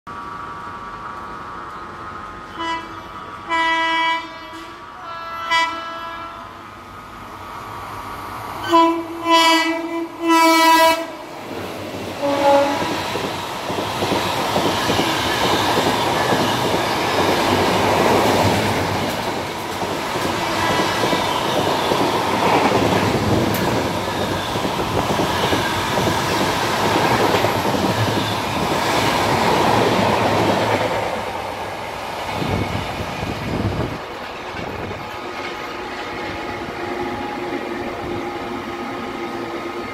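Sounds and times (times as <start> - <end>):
train rumbling past: 0.1 - 39.9
train horn blasts: 2.5 - 6.6, 8.6 - 11.2, 12.2 - 13.0.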